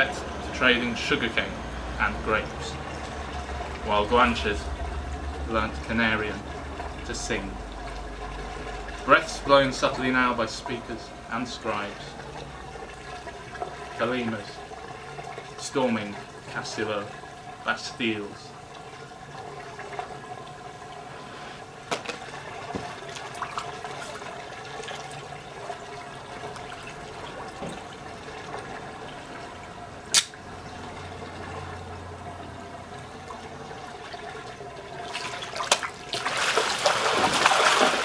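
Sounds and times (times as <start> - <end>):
pool water lapping: 0.0 - 38.0
water splashing: 0.0 - 38.0
sharp click: 30.1 - 30.4.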